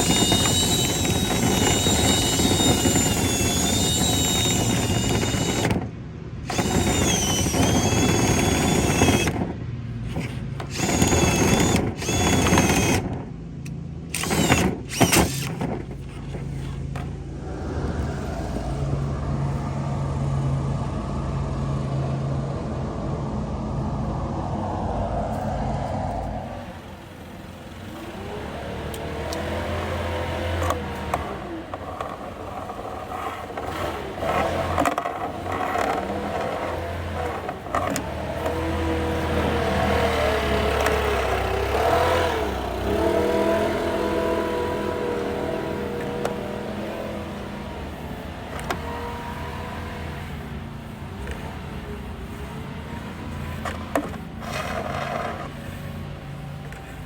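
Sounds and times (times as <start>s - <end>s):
power drill motor whine: 0.0s - 9.5s, 10.1s - 13.2s, 14.1s - 17.1s, 33.5s - 50.4s.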